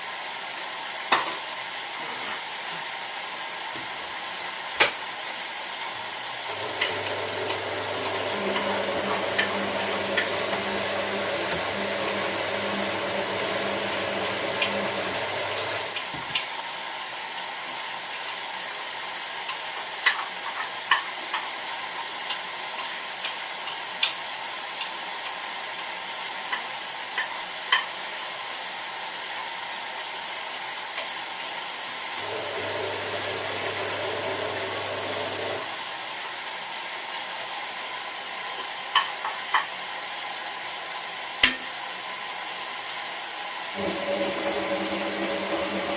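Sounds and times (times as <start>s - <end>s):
washing machine drum motor humming: 6.4s - 16.4s, 32.2s - 35.9s, 43.7s - 45.9s
water swishing in drum: 6.5s - 16.3s, 43.8s - 45.9s.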